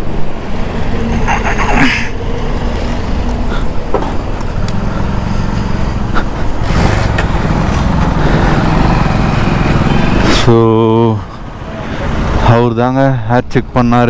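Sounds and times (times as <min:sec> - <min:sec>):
road noise: 0:00.0 - 0:14.0
motorcycle engine running: 0:02.4 - 0:10.5.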